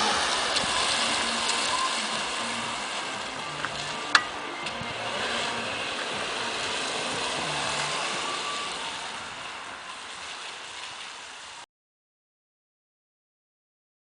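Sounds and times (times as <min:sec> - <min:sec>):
car road and engine noise: 0:00.0 - 0:11.7.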